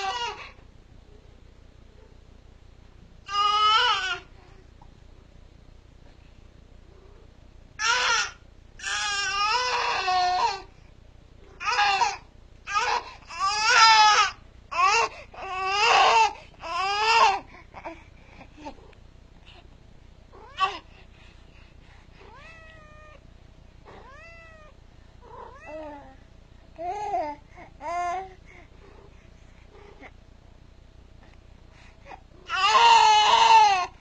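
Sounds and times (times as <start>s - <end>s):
baby crying: 3.3s - 4.3s, 7.8s - 10.7s, 11.6s - 17.4s, 32.4s - 34.0s
cat meowing: 22.3s - 23.2s, 23.9s - 25.8s.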